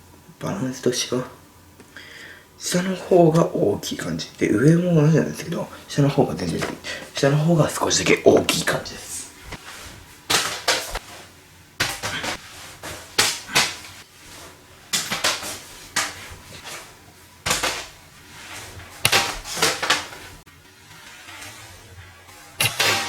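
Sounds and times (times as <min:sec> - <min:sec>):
paper rustling and crackling: 0:04.7 - 0:20.4.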